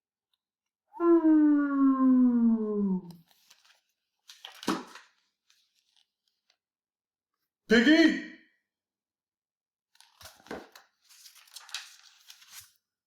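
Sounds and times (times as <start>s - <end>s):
person holding a long vowel: 1.0s - 3.2s.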